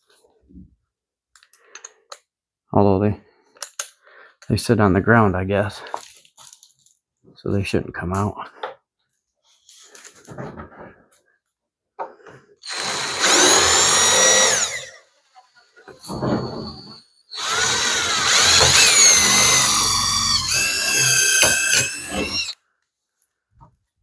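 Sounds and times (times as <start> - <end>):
power drill motor whine: 12.6 - 15.1, 15.9 - 22.6.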